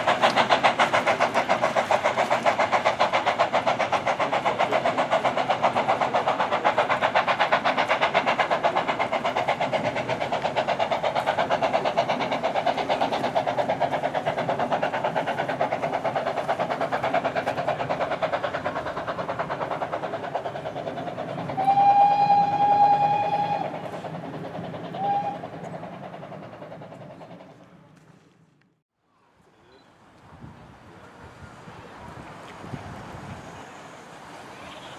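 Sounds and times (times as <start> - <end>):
steam train clattering: 0.0 - 28.4, 30.2 - 34.9
train whistle: 21.6 - 23.8, 24.9 - 25.4.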